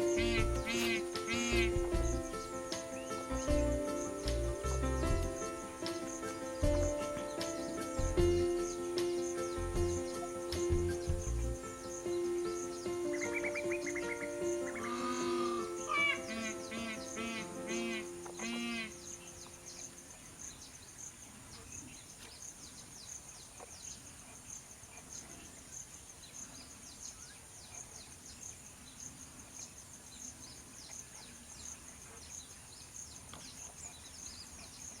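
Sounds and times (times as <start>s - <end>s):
high-pitched insect drone: 0.0s - 7.0s, 13.6s - 19.2s
music: 0.0s - 19.1s
small birds chirping: 0.0s - 35.0s.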